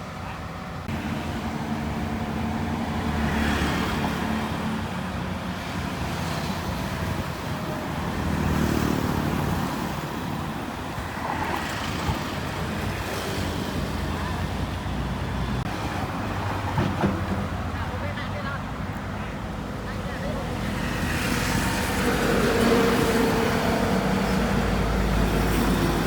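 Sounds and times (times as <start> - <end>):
diesel engine of earthmoving machine: 0.0 - 15.7.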